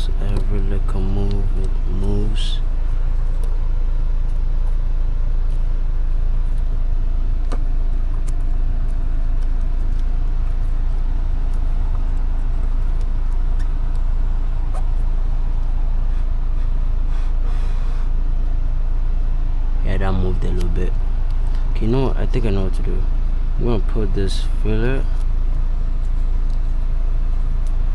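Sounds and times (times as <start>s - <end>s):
car engine idling: 0.0s - 27.9s.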